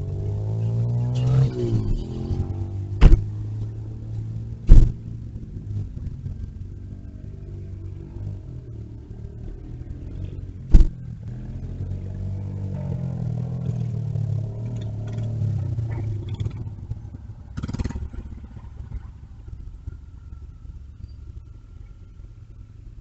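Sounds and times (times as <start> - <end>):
engine running: 0.0 - 23.0
sharp knock: 3.0 - 3.3, 4.7 - 5.0, 10.7 - 11.0.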